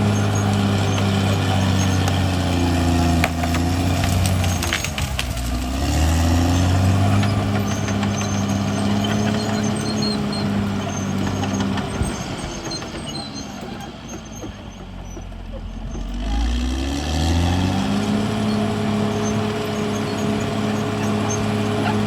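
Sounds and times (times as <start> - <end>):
bulldozer diesel engine under load: 0.0 - 22.0.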